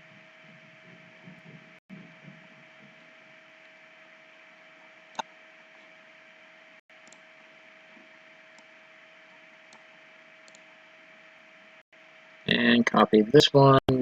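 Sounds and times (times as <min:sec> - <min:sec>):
faint steady hum: 0:00.0 - 0:14.0
computer mouse click: 0:09.7 - 0:10.7.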